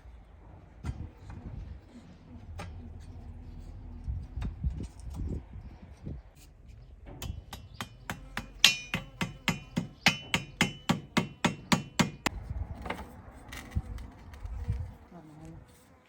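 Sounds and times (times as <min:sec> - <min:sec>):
hammer striking metal: 0:07.2 - 0:12.3.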